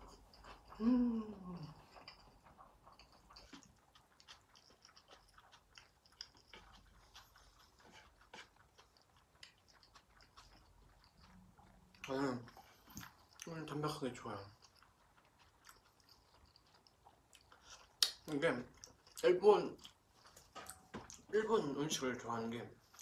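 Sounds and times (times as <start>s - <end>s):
chewing noodles: 0.0s - 23.0s
wet mouth clicks: 15.2s - 18.4s.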